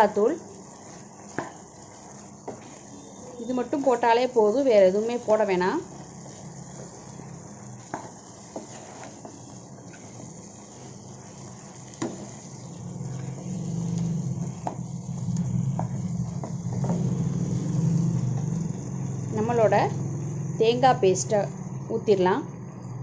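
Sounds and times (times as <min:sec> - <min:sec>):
chicken sizzling in a frying pan: 0:00.0 - 0:21.4
spatula scraping and tapping pan: 0:00.7 - 0:03.2, 0:06.1 - 0:17.6
low hum: 0:11.0 - 0:23.0.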